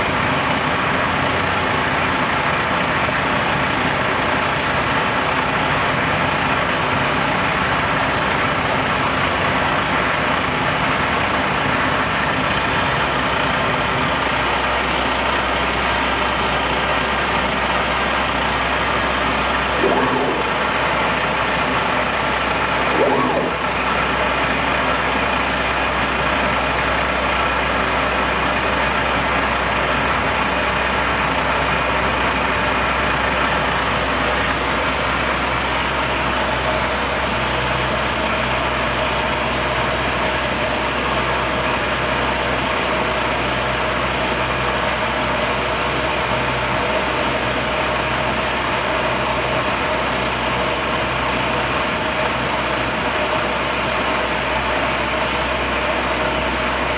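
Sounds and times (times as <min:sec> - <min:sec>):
milling machine humming and whining: 0:17.2 - 0:56.9
low tone: 0:19.7 - 0:21.0, 0:22.8 - 0:24.4
short loud sound: 0:19.8 - 0:20.7, 0:22.8 - 0:23.9.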